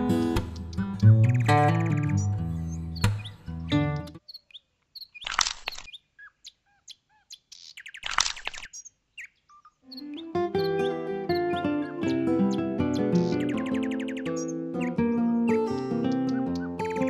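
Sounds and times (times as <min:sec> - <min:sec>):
bird chirps: 0:00.5 - 0:17.0
background music: 0:09.9 - 0:17.0.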